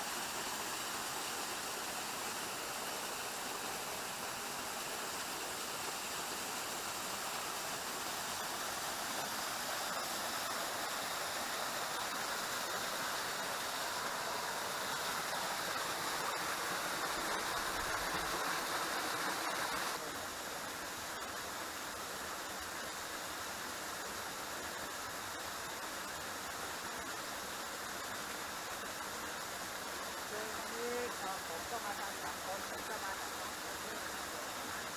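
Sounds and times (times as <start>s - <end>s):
waterfall rushing: 0.0s - 20.3s.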